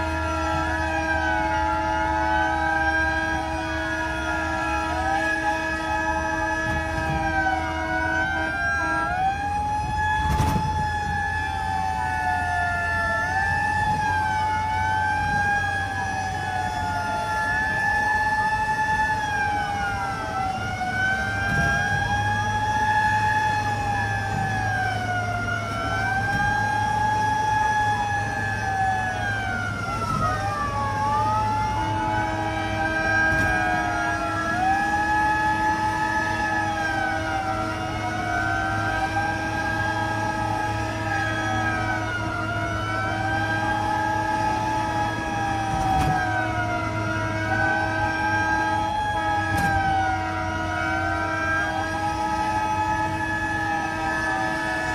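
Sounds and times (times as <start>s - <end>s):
fire truck sirens wailing: 0.0s - 54.9s
low engine drone: 0.0s - 54.9s.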